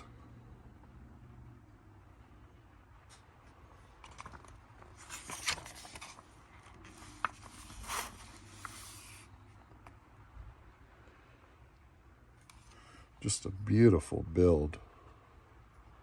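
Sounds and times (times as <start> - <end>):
magazine pages rustling: 3.9 - 9.4.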